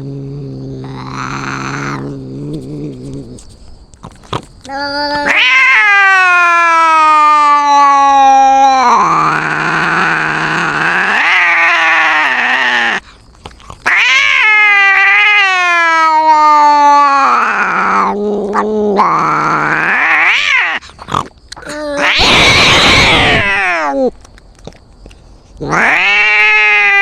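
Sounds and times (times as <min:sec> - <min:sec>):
cat hissing: 0:00.0 - 0:24.2, 0:25.6 - 0:27.0
cats yowling: 0:00.8 - 0:03.4, 0:04.8 - 0:13.1, 0:13.8 - 0:24.2, 0:25.6 - 0:27.0.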